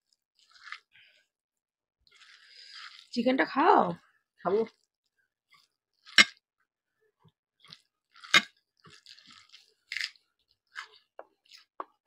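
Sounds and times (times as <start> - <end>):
crunchy bites and chewing: 0.4 - 1.0, 2.1 - 3.1, 7.6 - 11.8.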